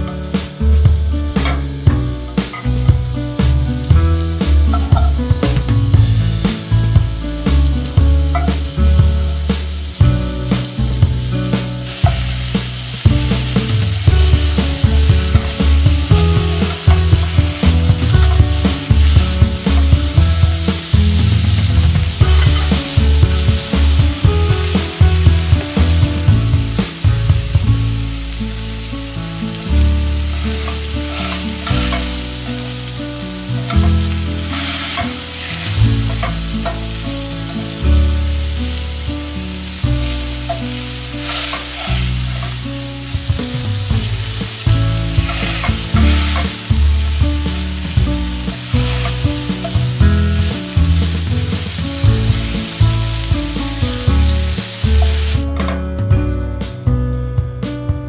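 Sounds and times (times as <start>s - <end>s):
patties sizzling in a frying pan: 0.0s - 55.5s
background music with bass: 0.0s - 58.0s
spatula scraping a pan: 11.9s - 23.9s, 30.3s - 32.8s, 33.6s - 37.7s, 40.4s - 42.6s, 45.1s - 49.9s.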